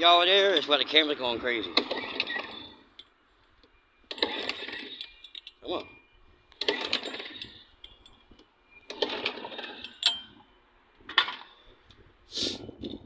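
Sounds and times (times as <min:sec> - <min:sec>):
small engine cranking: 0:04.1 - 0:05.5, 0:06.6 - 0:08.2, 0:08.9 - 0:10.2.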